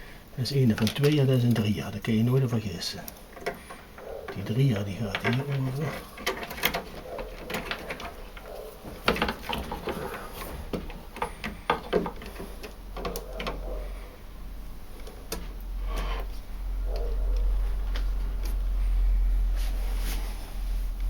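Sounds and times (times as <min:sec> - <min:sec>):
plastic clicks and knocks: 0:05.1 - 0:13.6
low hum: 0:12.6 - 0:21.0.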